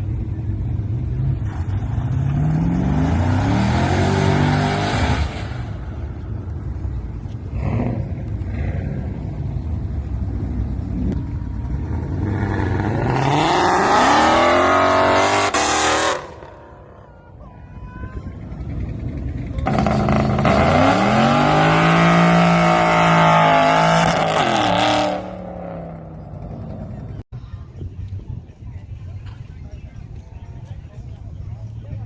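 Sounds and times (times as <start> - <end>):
car engine accelerating hard: 0.4 - 16.7, 18.5 - 27.2.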